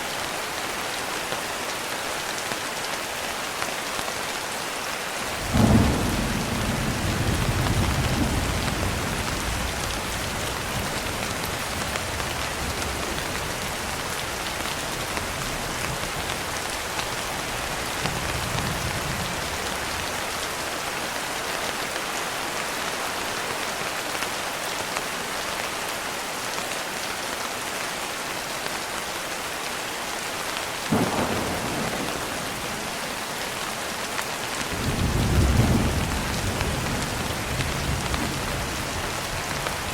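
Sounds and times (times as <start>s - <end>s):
thunder clap and rumble: 5.4s - 16.7s, 30.9s - 33.5s, 34.6s - 39.9s.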